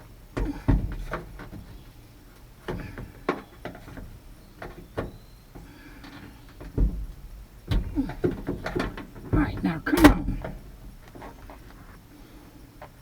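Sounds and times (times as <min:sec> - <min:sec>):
heavy thump: 0:06.6 - 0:11.0.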